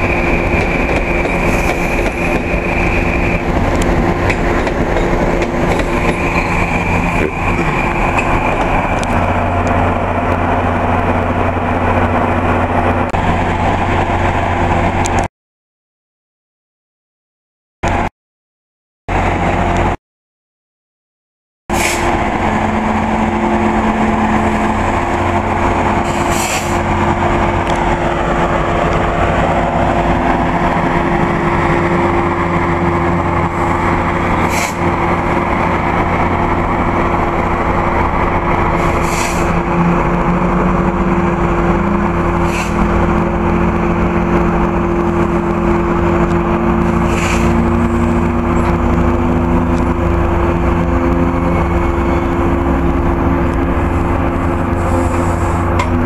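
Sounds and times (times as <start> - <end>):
train wheels rumbling on rails: 0.0 - 15.3, 21.7 - 56.0.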